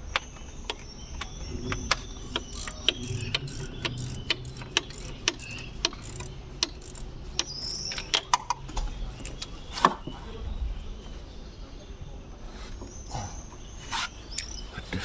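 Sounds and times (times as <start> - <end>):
wrench clicking on bolts: 1.5 - 9.5.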